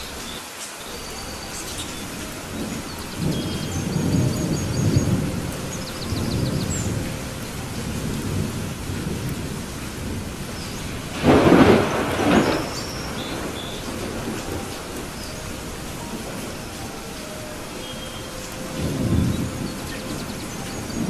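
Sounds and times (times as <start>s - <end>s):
steady rain: 0.0s - 21.0s
thunder rolling: 0.0s - 21.0s
loud thunderclap: 0.9s - 16.9s, 18.5s - 21.0s.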